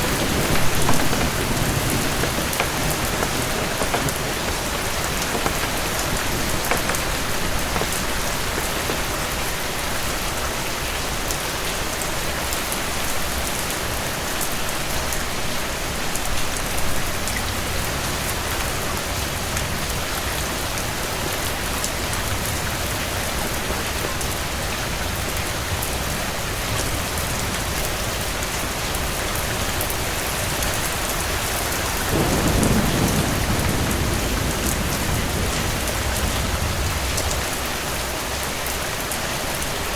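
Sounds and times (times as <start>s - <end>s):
steady rain falling: 0.0s - 39.9s
low rumble of thunder: 32.0s - 37.5s.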